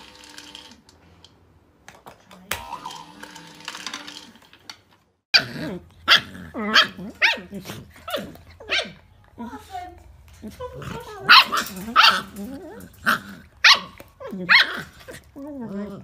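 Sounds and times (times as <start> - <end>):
dogs barking and yipping: 5.4 - 9.1, 11.0 - 15.4.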